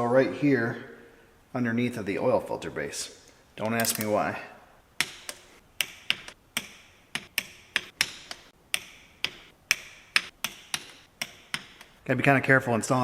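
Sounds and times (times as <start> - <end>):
hand wrench clicking: 5.0 - 12.0.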